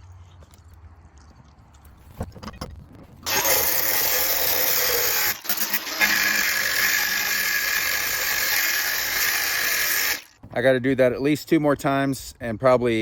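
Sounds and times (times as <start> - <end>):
power tool whining: 3.2 - 10.4.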